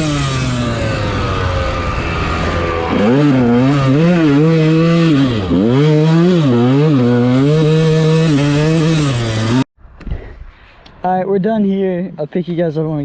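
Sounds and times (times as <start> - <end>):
dirt bike engine revving: 0.0 - 9.7.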